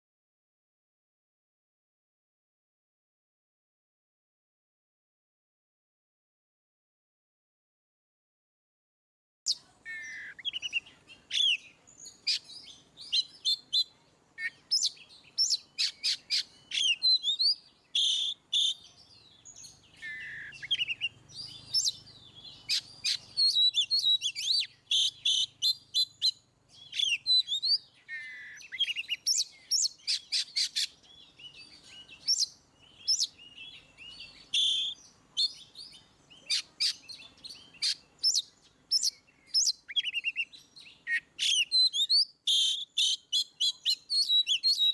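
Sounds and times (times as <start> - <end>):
songbird singing whistles and chirps: 9.5 - 44.9.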